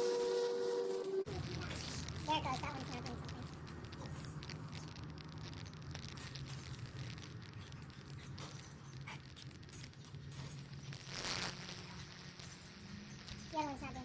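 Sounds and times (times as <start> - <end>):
faint electric crackles: 0.0 - 14.0
transformer humming: 0.0 - 14.0.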